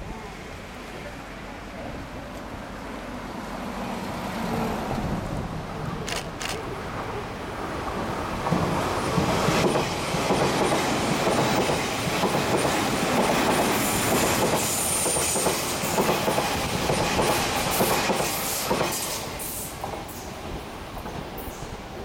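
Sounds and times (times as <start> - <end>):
train wheels clattering: 8.5 - 20.3.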